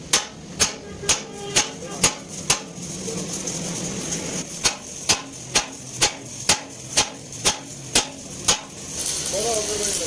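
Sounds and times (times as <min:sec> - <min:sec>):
hammer striking metal: 0:00.0 - 0:02.8, 0:04.4 - 0:08.8.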